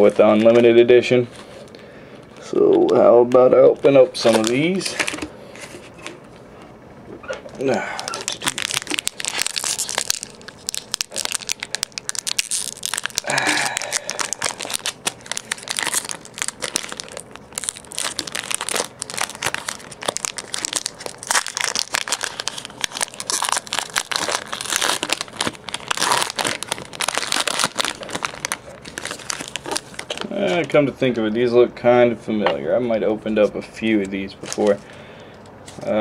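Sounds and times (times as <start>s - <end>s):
foil wrapper crinkling: 4.1s - 5.2s, 8.0s - 30.8s, 34.4s - 34.8s.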